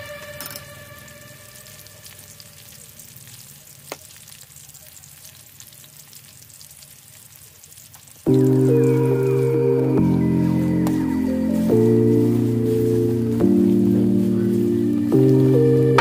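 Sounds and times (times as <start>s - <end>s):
onions sizzling in hot oil: 0.0s - 16.0s
loud background music: 8.5s - 16.0s.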